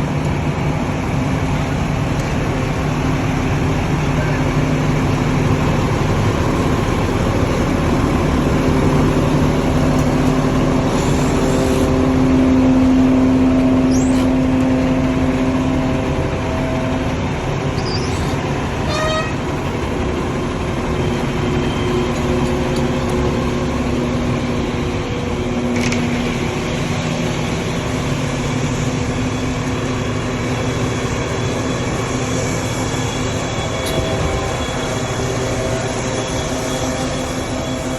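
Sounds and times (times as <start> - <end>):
truck engines rumbling: 0.0 - 37.9.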